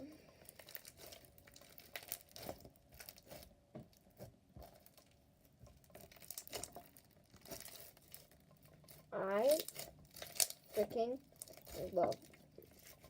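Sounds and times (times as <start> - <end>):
slime sticky crackles and pops: 0.6 - 3.5, 6.0 - 10.8.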